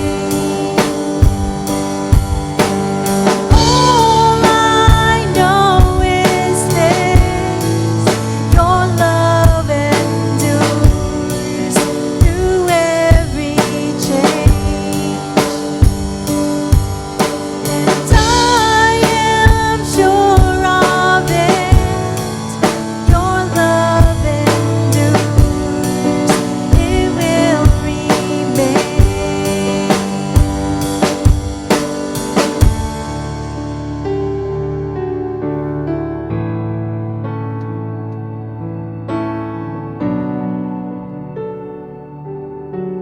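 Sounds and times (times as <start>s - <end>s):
person singing: 0.0s - 1.3s, 3.5s - 15.9s, 17.4s - 30.8s
band playing worship song: 0.0s - 35.4s.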